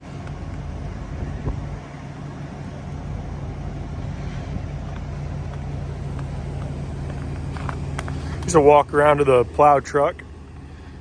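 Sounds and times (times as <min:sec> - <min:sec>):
truck engine idling: 0:00.0 - 0:11.0
wind on microphone: 0:01.1 - 0:01.8.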